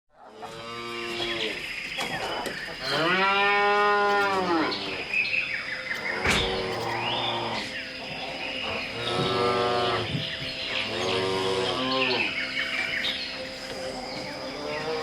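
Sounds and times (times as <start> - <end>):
cattle mooing: 0.3 - 1.6, 2.8 - 5.1, 6.1 - 12.4, 13.7 - 15.0.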